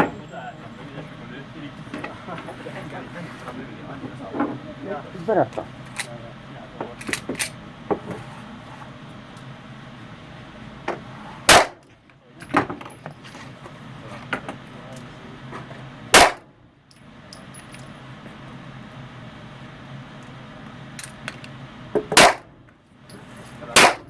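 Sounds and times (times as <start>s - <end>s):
pistol shots: 11.5s - 11.8s, 16.1s - 16.4s, 22.2s - 22.5s, 23.8s - 24.0s.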